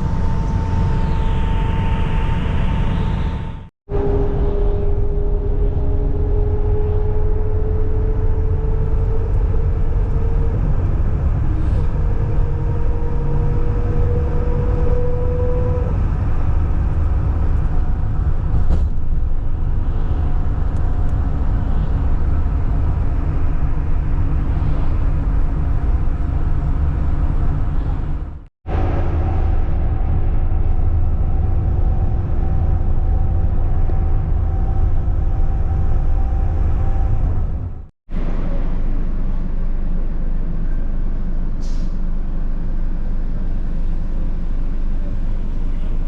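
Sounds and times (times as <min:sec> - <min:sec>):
faint rising whine: 0:00.0 - 0:15.4
vehicle rumble: 0:00.0 - 0:46.0.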